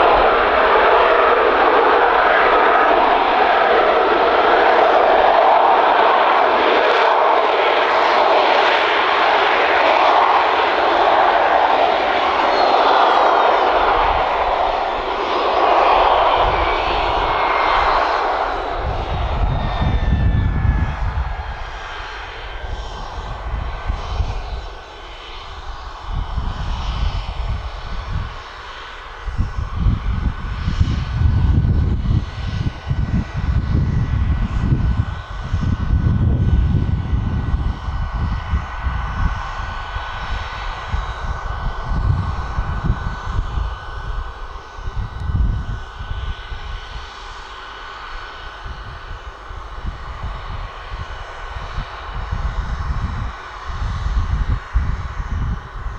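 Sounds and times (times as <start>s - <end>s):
jet engine roar and whine: 0.0s - 55.9s
low rumble: 11.0s - 28.3s.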